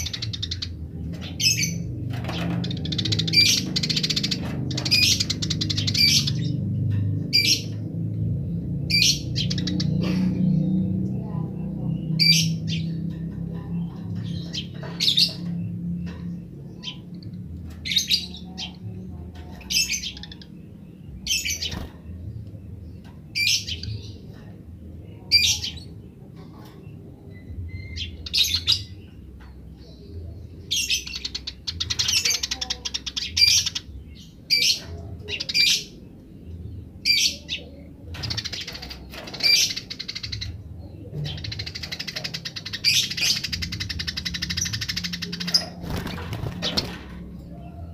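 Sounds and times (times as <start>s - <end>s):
sparrows chirping: 0.0s - 47.9s.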